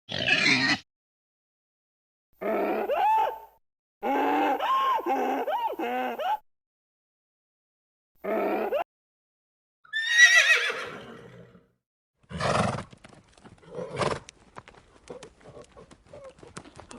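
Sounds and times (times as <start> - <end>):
horse whinnying: 9.9 - 11.6, 12.3 - 12.9
hoof clops: 12.3 - 16.9.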